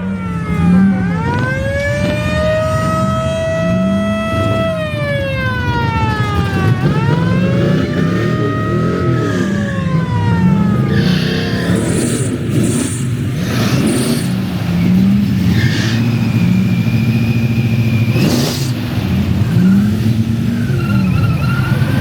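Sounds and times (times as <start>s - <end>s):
car engines revving: 0.0s - 22.0s
siren winding down: 0.0s - 22.0s
sharp crack: 10.8s - 22.0s.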